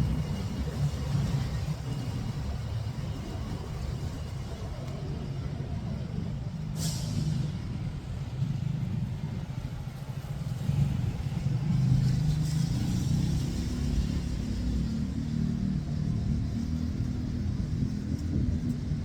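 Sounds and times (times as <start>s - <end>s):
traffic rumble: 0.0s - 19.0s
short sharp hiss: 6.8s - 7.4s.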